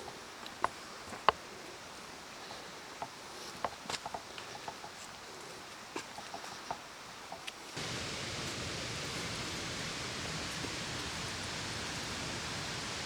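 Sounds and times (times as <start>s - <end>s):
creek water rushing: 7.8s - 13.0s.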